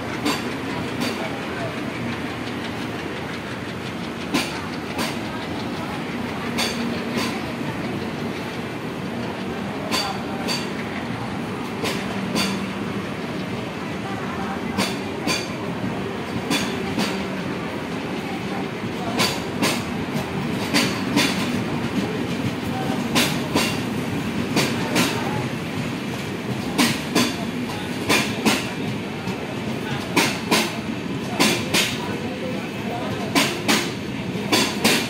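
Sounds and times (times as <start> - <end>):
train coaches rumbling: 0.0 - 35.0
wheel clacks over rail joints: 0.1 - 11.0, 11.6 - 13.7.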